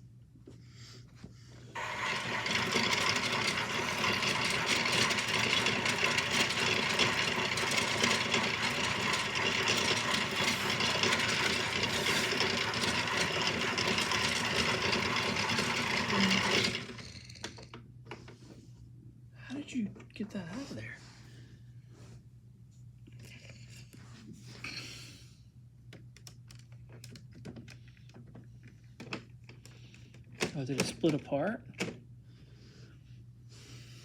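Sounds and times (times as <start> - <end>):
small electric motor running: 1.8 - 17.7.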